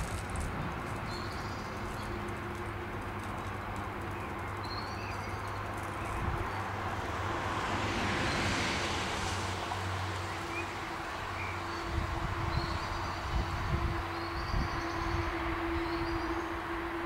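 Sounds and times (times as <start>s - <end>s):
vehicle passing: 0.0s - 17.0s.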